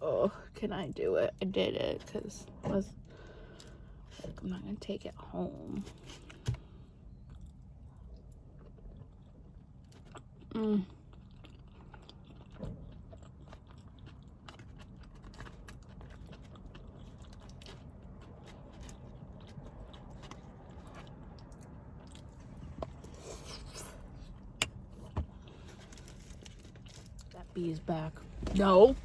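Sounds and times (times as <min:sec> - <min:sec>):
person chewing food: 0:05.9 - 0:27.4.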